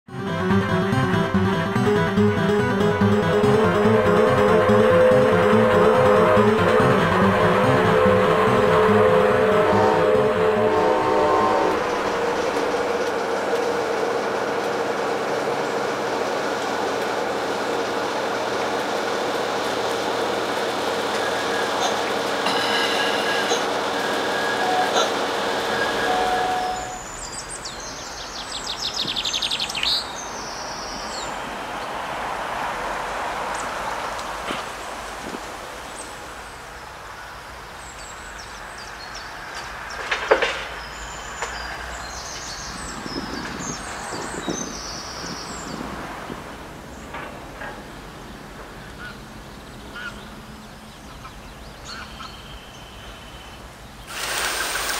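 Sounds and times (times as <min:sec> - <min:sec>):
train interior rumble: 0:00.1 - 0:52.3
steady rushing noise: 0:00.2 - 0:26.8
constant hum: 0:00.2 - 0:28.0.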